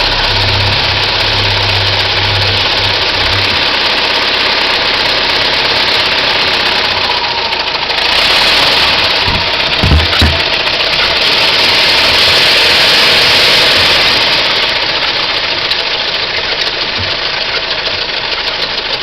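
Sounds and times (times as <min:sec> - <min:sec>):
low hum: 0:00.0 - 0:12.4
car engine running: 0:00.0 - 0:19.0
low thump: 0:09.2 - 0:10.6.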